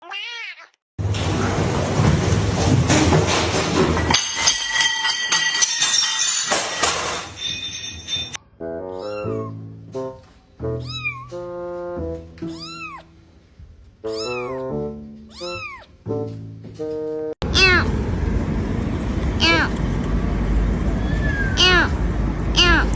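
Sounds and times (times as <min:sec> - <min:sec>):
cat meowing: 0:00.0 - 0:00.8, 0:08.9 - 0:09.6, 0:10.8 - 0:11.4, 0:12.4 - 0:13.1, 0:14.1 - 0:14.7, 0:15.3 - 0:16.0, 0:17.6 - 0:17.9, 0:19.4 - 0:19.8, 0:21.0 - 0:22.0.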